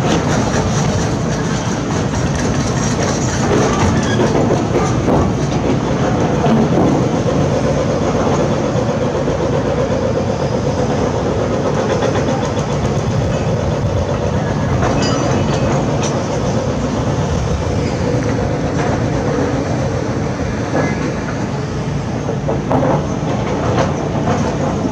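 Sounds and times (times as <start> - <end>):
rattling and clanking: 0.0 - 9.6, 10.7 - 24.9
heavy machinery diesel drone: 0.0 - 24.9.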